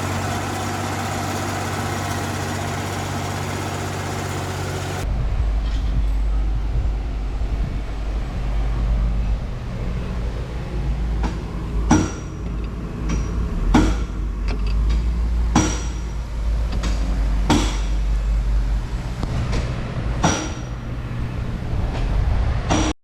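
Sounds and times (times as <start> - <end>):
engine running low: 0.0 - 22.9
hammer striking metal: 11.2 - 12.4, 15.5 - 16.2, 16.8 - 18.0, 20.2 - 20.9.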